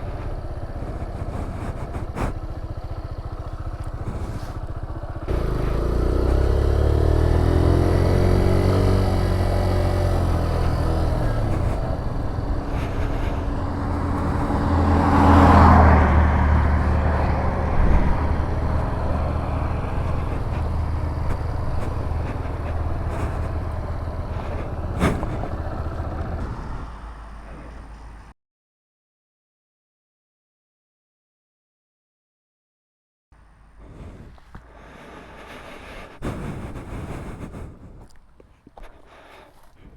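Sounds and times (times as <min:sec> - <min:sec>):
motorcycle engine running: 0:00.0 - 0:28.3.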